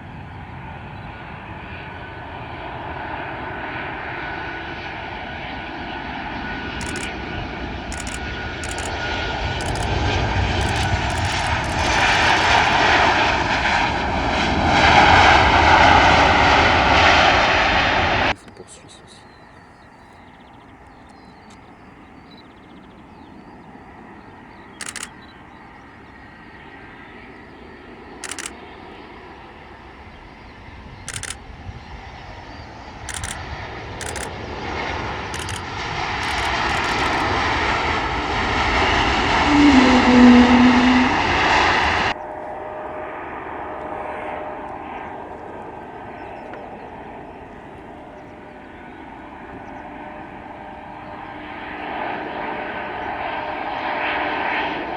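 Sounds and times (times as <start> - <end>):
airliner engines: 0.0 - 54.9
short sharp clicks: 6.8 - 9.0, 9.6 - 12.8, 24.8 - 25.2, 28.2 - 28.6, 31.1 - 31.4, 33.1 - 34.4, 35.4 - 37.3.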